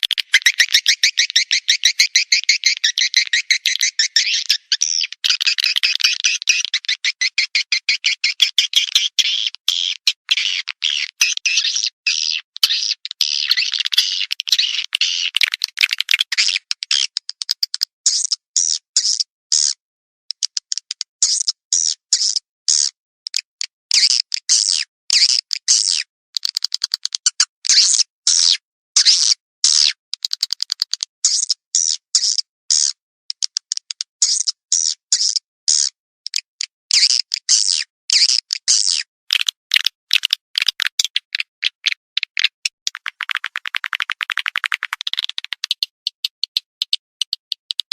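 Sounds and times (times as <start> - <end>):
swiftlet chattering chirps: 0.0 - 9.2
swiftlet chirping twitters: 0.0 - 17.0, 37.6 - 47.8
rapid clicks: 15.3 - 16.4, 39.3 - 47.9.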